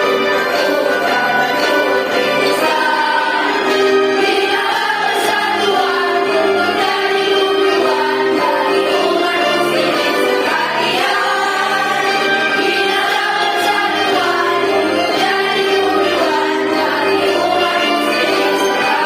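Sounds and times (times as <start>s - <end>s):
choir singing a march song: 0.0s - 19.0s.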